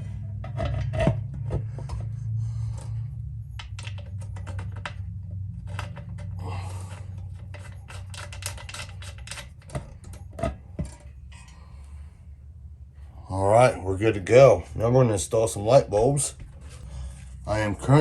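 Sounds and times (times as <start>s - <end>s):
light fixture clicking and scraping: 0.0s - 11.6s.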